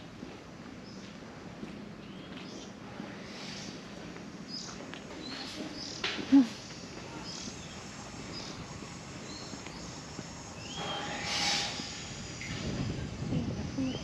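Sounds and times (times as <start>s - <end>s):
outdoor background noise: 0.0s - 14.0s
small birds chirping: 2.0s - 11.1s.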